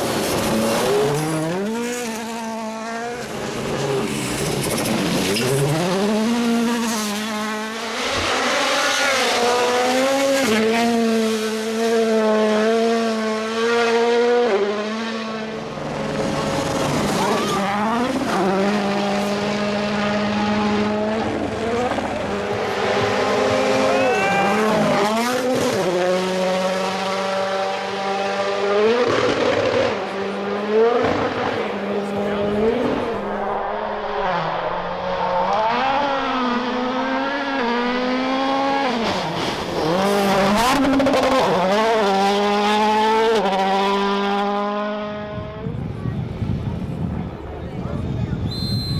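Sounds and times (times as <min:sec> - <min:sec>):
rally car engines revving: 0:00.0 - 0:48.5.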